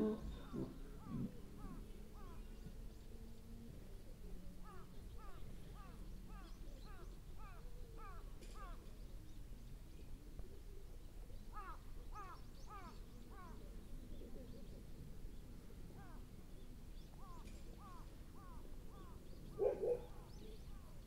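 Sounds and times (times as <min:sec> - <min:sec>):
bird calling: 0:11.5 - 0:13.7, 0:17.1 - 0:21.0.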